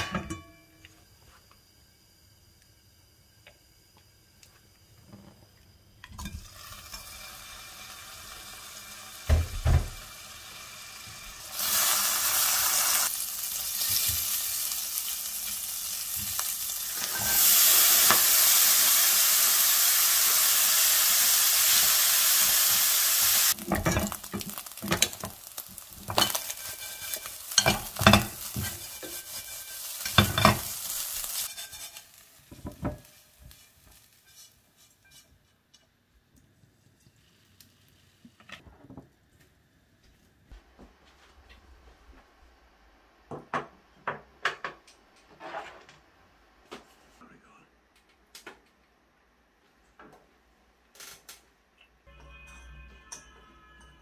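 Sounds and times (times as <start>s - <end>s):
food sizzling in hot oil: 6.2s - 35.3s
spatula scraping pot: 31.4s - 35.6s.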